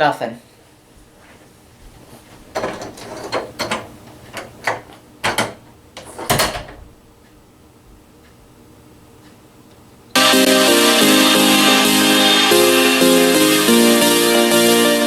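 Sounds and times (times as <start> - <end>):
irregular knocks and clunks: 2.5 - 7.0.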